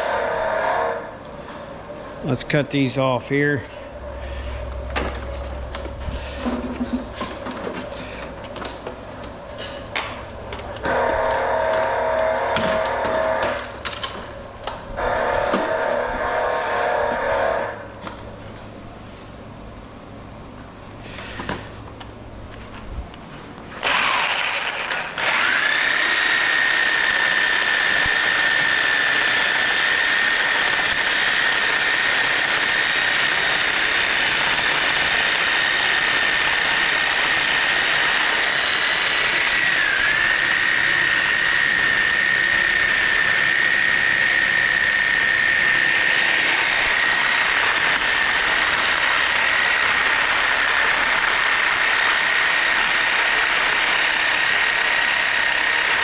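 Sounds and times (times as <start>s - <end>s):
electric power tool whining: 10.8s - 14.3s, 23.8s - 56.0s.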